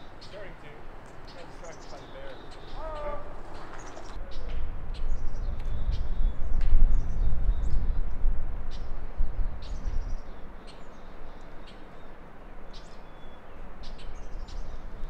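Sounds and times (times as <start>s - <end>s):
small birds chirping: 0.0s - 8.0s, 8.7s - 15.0s
low rumble: 2.5s - 11.4s.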